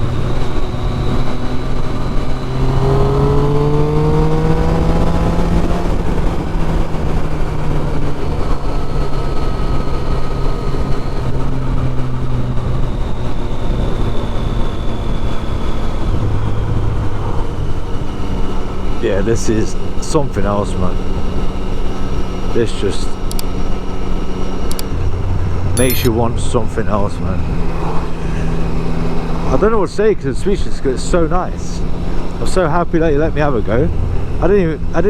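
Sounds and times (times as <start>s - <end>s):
motorcycle engine accelerating: 0.0s - 22.6s.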